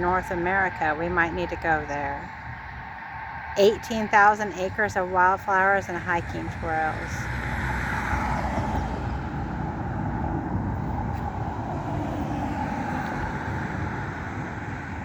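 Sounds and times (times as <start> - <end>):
road rumble: 0.0 - 15.0
car engine: 6.1 - 15.0.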